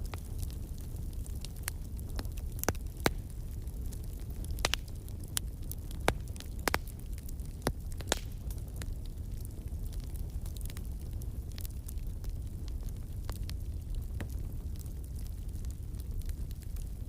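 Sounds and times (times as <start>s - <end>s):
fire pops and snaps: 0.0s - 17.0s
wood fire crackling: 0.0s - 17.0s.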